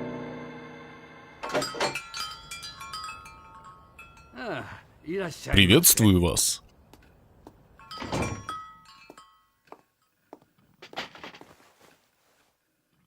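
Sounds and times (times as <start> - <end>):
thunk with metallic ringing: 7.9 - 8.6.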